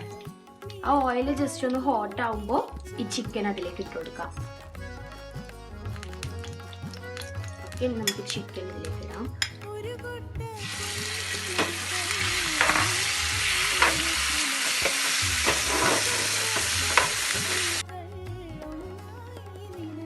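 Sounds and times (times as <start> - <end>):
chicken sizzling in hot oil: 10.6 - 17.8.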